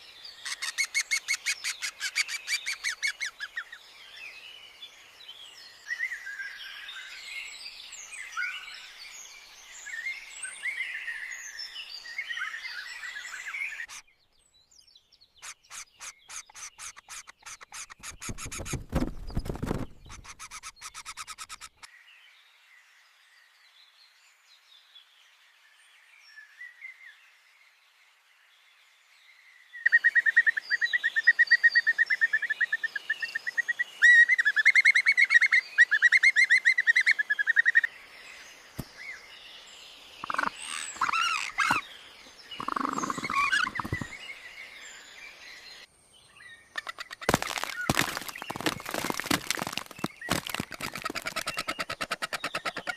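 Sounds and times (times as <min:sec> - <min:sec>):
birds chirping in chorus: 0:00.0 - 0:21.9, 0:36.8 - 0:52.9
faint chirps: 0:39.9 - 0:45.9.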